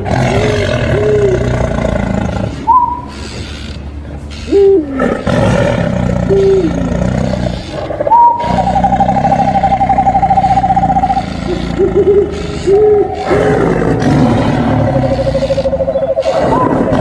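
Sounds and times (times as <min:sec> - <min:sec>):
tiger growling and roaring: 0:00.0 - 0:17.0
rising-and-falling calls: 0:02.7 - 0:03.8, 0:07.6 - 0:17.0
high warbling tone: 0:08.0 - 0:14.0, 0:14.6 - 0:17.0.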